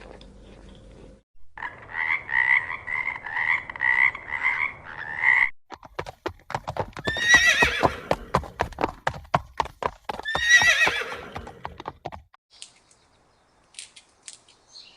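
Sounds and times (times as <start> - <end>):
horse hooves clopping: 5.7 - 12.4
horse whinnying: 6.9 - 8.6, 10.1 - 11.9.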